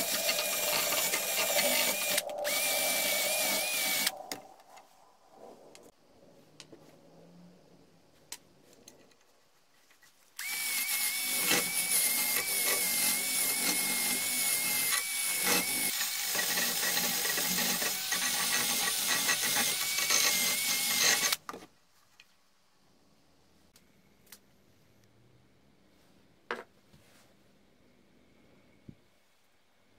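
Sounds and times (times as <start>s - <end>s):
electric power tool whining: 0.0s - 4.1s, 10.4s - 21.4s.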